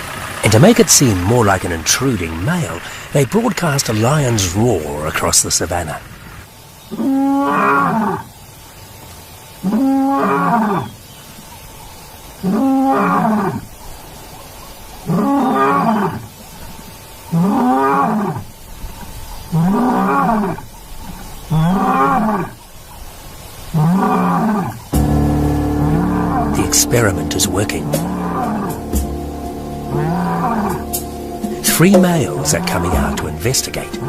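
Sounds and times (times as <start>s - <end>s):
lion roaring: 23.8s - 33.4s.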